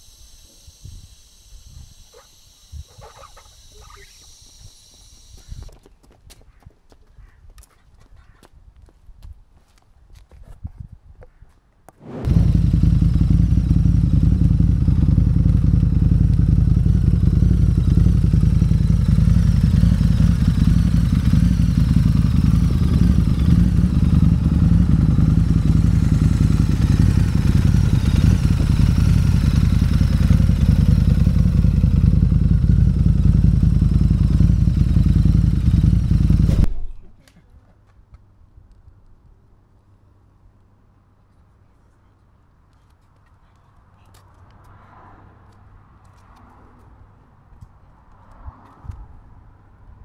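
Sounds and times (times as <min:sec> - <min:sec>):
motorcycle engine running: 0:12.0 - 0:36.8.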